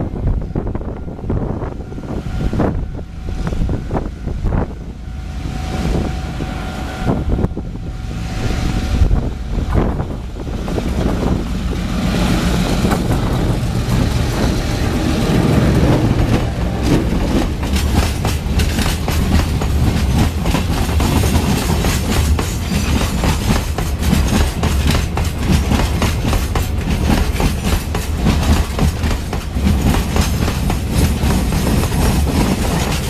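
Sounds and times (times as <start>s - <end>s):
train wheels clicking over rail joints: 9.6s - 33.0s.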